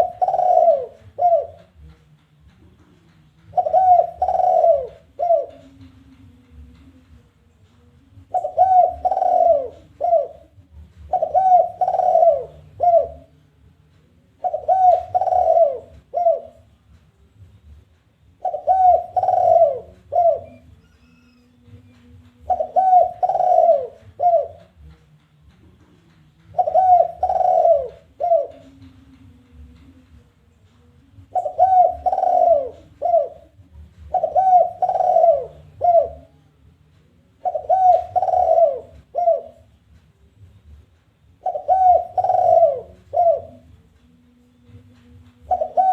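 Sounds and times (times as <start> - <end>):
dove cooing: 0.0 - 1.9, 3.5 - 6.0, 8.2 - 13.4, 14.4 - 16.8, 18.4 - 24.9, 26.5 - 29.0, 31.2 - 36.5, 37.4 - 39.8, 41.4 - 43.8, 45.4 - 45.9.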